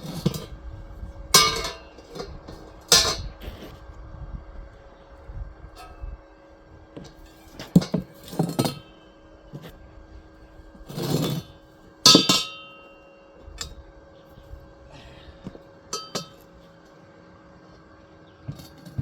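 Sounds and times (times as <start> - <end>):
faint steady hum: 0.0 - 19.0
loud ringing clank: 1.3 - 3.4, 12.0 - 13.8, 15.9 - 16.6
tools knocking and clinking: 16.0 - 16.4.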